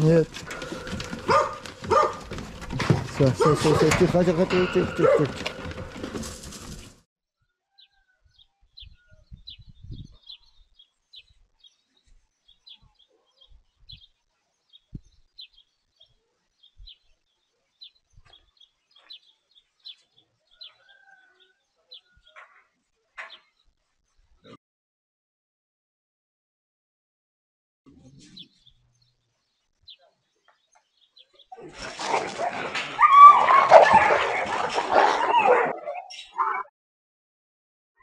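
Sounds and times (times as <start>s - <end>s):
small birds chirping: 7.7s - 24.5s, 27.9s - 31.8s.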